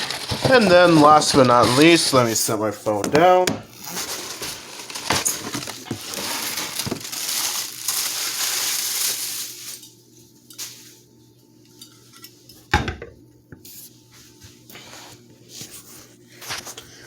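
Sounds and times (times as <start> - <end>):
hands rustling packaging: 0.0 - 2.6, 3.8 - 10.0.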